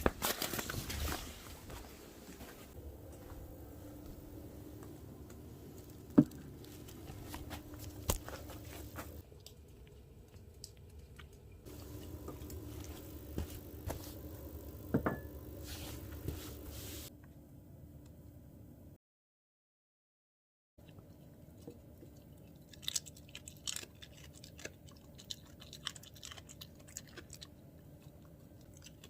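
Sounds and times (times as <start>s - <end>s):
wood fire crackling: 2.4s - 17.1s.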